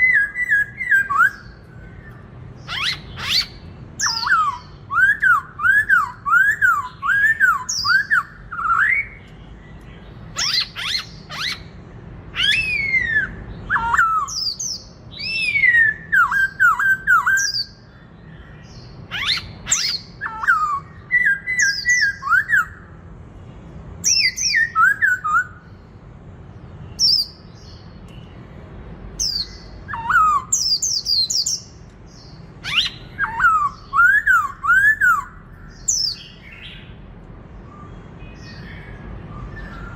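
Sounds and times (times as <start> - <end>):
bird singing whistled notes: 0.0 - 22.9, 24.0 - 25.8, 26.8 - 28.4, 29.2 - 37.0, 37.6 - 39.9.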